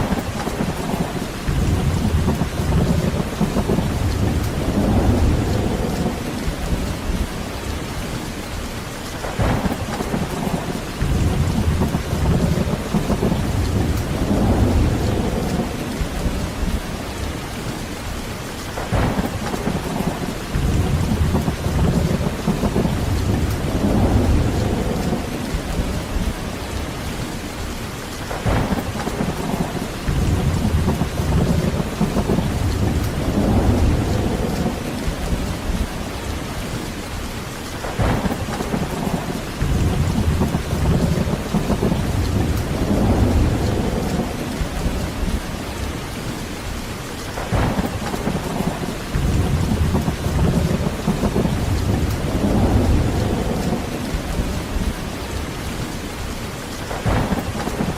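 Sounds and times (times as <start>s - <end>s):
thunder rolling: 0.0s - 7.4s, 9.2s - 17.0s, 18.8s - 26.5s, 28.3s - 36.1s, 37.8s - 45.7s, 47.4s - 55.4s, 56.9s - 57.9s
heavy rain falling: 0.0s - 57.9s
sharp thunder cracks: 9.2s - 16.5s, 18.8s - 26.3s, 28.3s - 35.9s, 37.8s - 45.4s, 47.4s - 55.0s, 56.9s - 57.9s.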